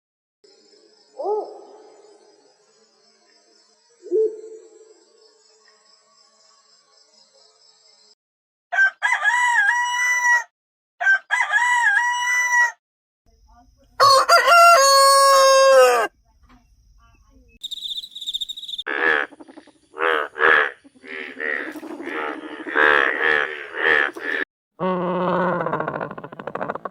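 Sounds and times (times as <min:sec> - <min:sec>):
rooster crowing: 0:08.7 - 0:12.8, 0:14.0 - 0:16.1.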